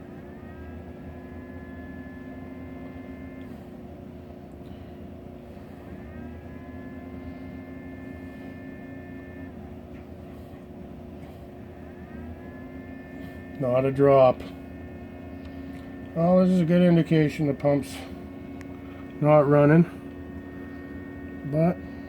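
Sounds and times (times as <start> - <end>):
ice maker electrical hum: 0.0 - 22.0
motor whine: 0.0 - 22.0.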